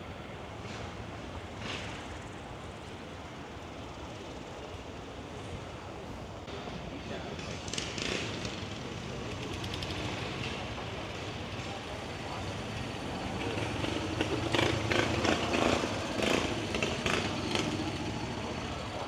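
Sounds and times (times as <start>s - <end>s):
murmur of people talking: 0.0s - 19.0s
vehicle engine running: 7.6s - 19.0s.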